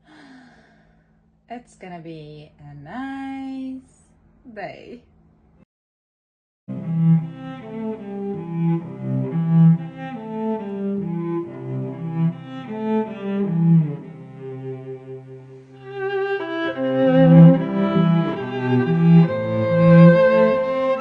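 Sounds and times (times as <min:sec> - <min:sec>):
cello playing slow melody: 0:06.7 - 0:21.0
higher strings: 0:06.7 - 0:21.0.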